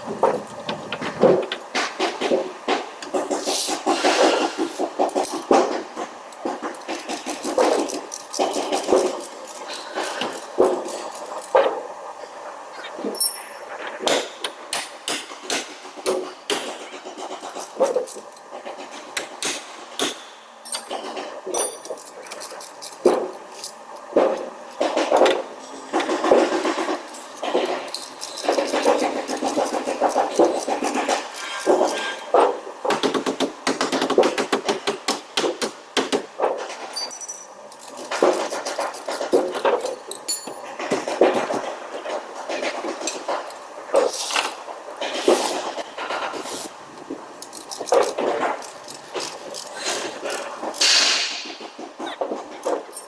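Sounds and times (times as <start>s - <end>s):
high metallic ring: 13.2s - 13.7s.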